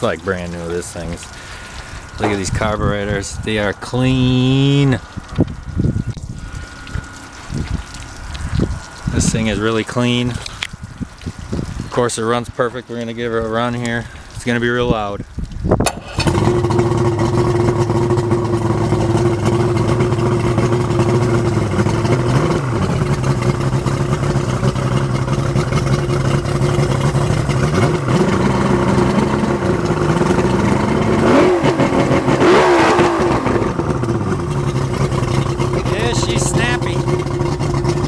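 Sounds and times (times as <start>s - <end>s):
outboard motor idling and revving: 0.0s - 14.9s, 15.8s - 38.0s.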